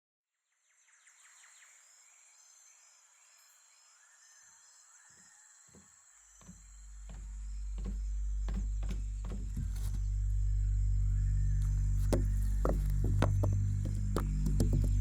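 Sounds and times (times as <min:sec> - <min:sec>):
high insect hum: 0:00.9 - 0:15.0
soft low music notes: 0:06.6 - 0:15.0.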